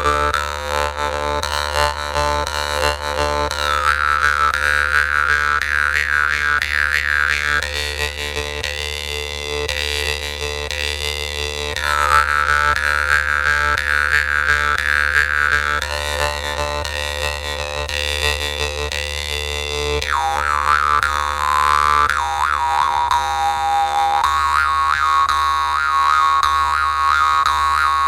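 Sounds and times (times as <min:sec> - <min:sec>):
jaw harp playing: 0:19.9 - 0:28.0.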